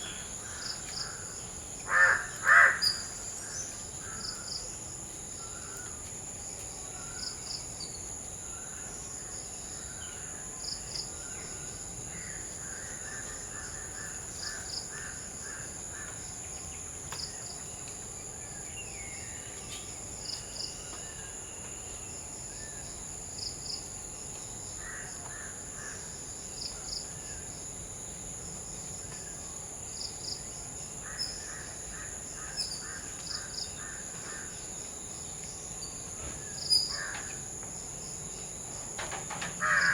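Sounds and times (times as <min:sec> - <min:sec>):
crows cawing: 0:01.9 - 0:03.0, 0:36.9 - 0:37.4, 0:39.6 - 0:39.9.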